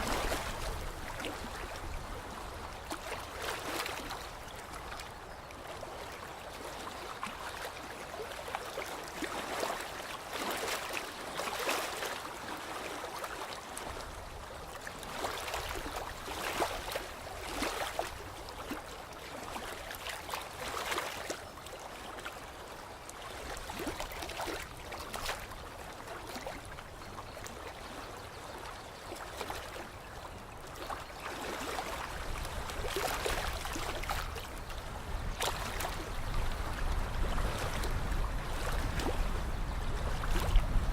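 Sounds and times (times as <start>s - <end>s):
water lapping and splashing: 0.0s - 40.9s.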